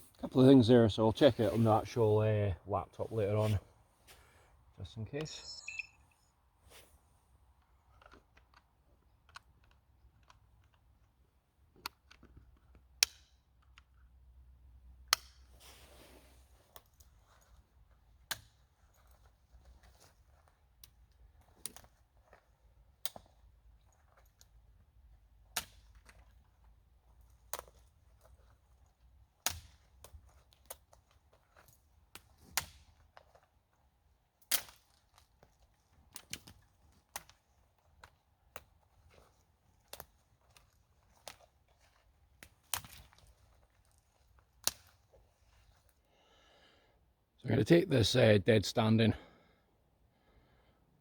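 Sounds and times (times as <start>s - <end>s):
twigs cracking under footsteps: 25.5s - 46.0s.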